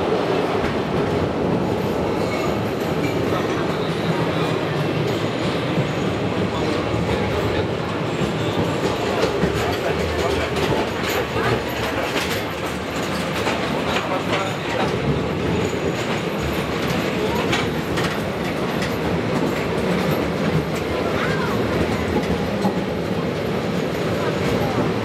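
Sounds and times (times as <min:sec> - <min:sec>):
train rumbling through tunnel: 0:00.0 - 0:25.0
wheels clacking over rail joints: 0:08.2 - 0:24.8.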